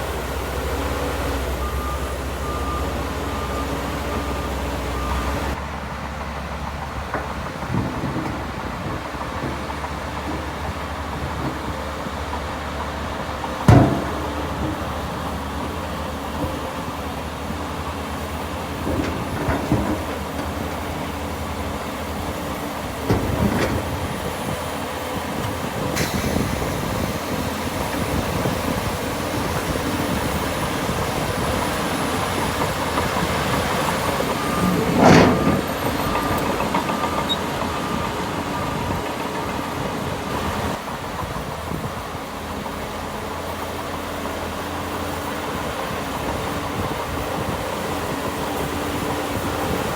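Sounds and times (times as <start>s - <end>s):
diesel earthmoving machinery running: 0.0s - 49.9s
metallic clanks and knocks: 13.6s - 15.0s, 18.8s - 20.6s, 34.5s - 37.4s.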